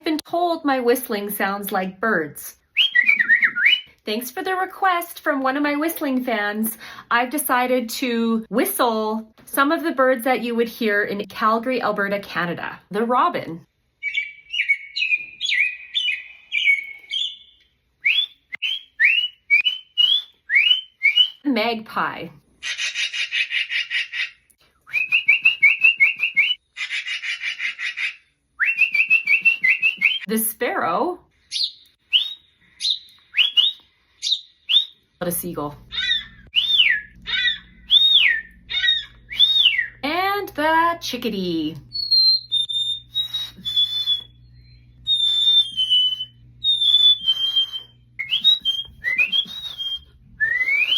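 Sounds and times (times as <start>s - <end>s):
person whistling rising notes: 2.8s - 3.9s, 14.1s - 21.4s, 24.8s - 26.6s, 31.6s - 35.0s, 36.5s - 37.2s, 37.9s - 38.5s, 39.3s - 40.0s, 41.9s - 50.9s.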